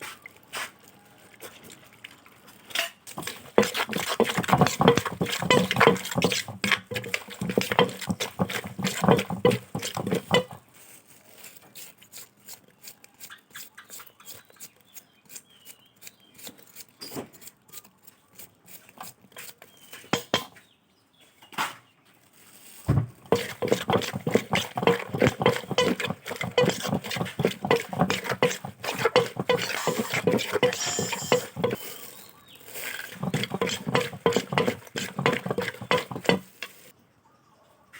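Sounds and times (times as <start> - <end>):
pestle pounding in mortar: 3.1 - 10.6, 20.1 - 20.6, 22.9 - 31.8, 33.0 - 36.8.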